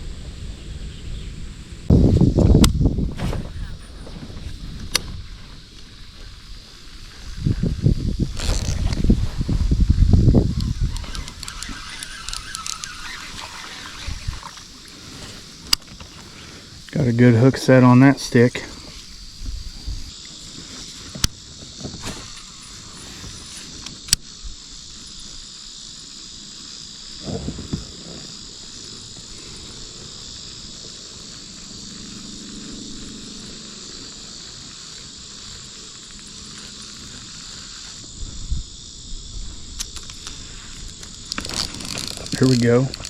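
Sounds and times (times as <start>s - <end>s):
insects chorus: 0.0s - 43.0s
sharp clicks: 10.3s - 16.2s, 39.8s - 43.0s.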